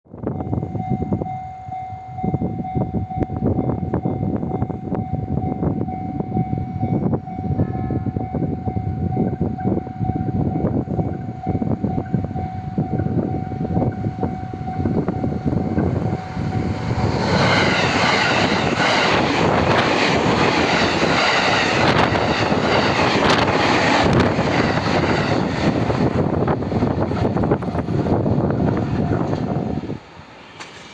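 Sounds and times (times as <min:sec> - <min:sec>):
electric train passing: 0:00.2 - 0:30.9
level crossing alarm ringing: 0:00.4 - 0:18.2.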